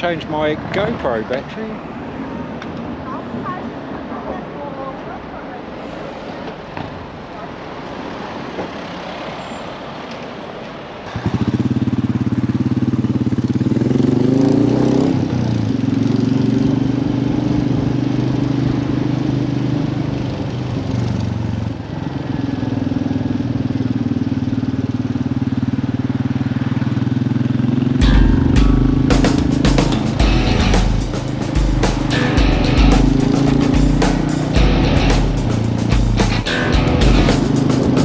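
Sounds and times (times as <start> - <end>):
motorcycle engine pulling away: 11.1 - 38.0.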